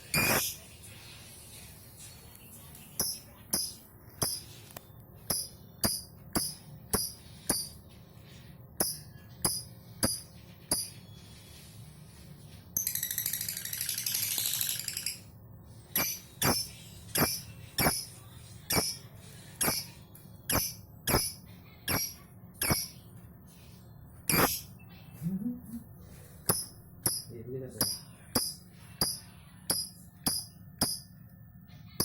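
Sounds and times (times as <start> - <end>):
lovebird chirping: 0.0 - 0.6, 3.0 - 4.5, 16.0 - 19.0, 19.6 - 23.0, 24.3 - 24.8
lovebird chattering trill: 0.2 - 0.5, 16.0 - 18.1, 21.9 - 23.0, 24.3 - 24.7.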